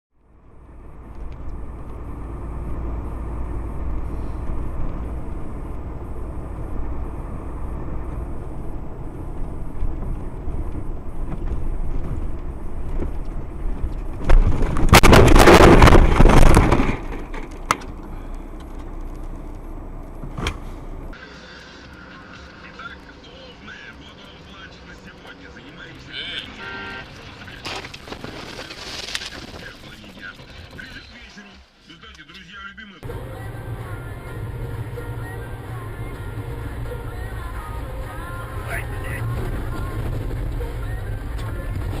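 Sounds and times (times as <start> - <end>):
car driving rumble: 0.1 - 31.5, 33.0 - 42.0
loud crunching collision: 11.2 - 20.8, 27.5 - 31.0.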